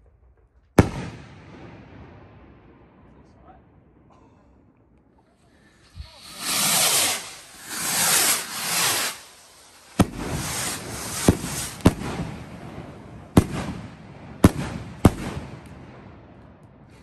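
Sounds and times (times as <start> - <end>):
firework bangs: 0.0 - 17.0
firework rushing hiss: 5.4 - 15.3.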